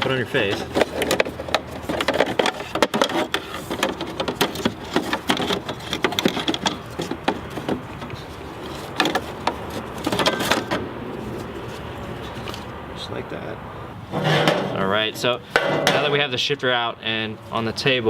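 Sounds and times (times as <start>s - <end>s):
plastic and metal parts clicking: 0.0s - 10.8s.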